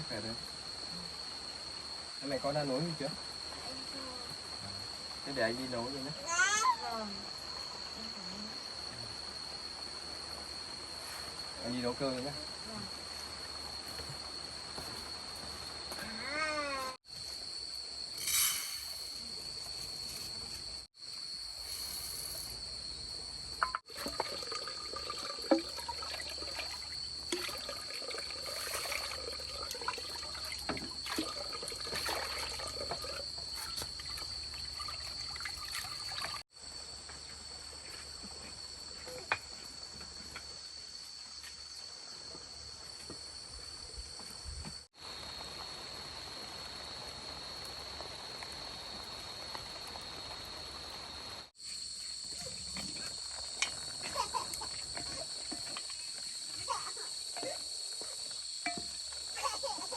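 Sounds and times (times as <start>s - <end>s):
insect trilling: 2.2s - 8.7s, 15.9s - 17.0s, 51.6s - 59.9s
clinks and knocks: 23.6s - 24.2s, 58.6s - 59.1s
water trickling and pouring: 23.6s - 36.5s.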